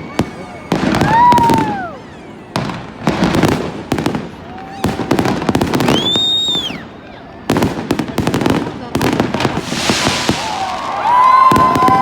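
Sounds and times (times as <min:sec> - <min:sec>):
fireworks banging: 0:00.0 - 0:12.0
fireworks crackling: 0:00.0 - 0:12.0
high whistle: 0:05.8 - 0:06.9.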